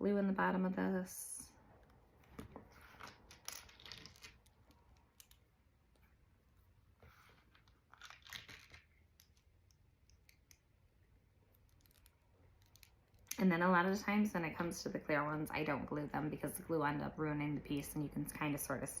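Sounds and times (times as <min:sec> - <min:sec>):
plastic pieces clicking and rustling: 0:03.0 - 0:05.4, 0:07.6 - 0:10.6.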